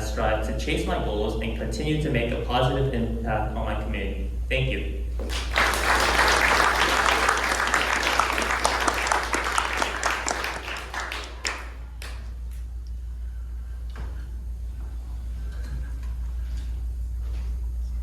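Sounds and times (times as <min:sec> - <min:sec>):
audience applauding: 0:05.2 - 0:12.3.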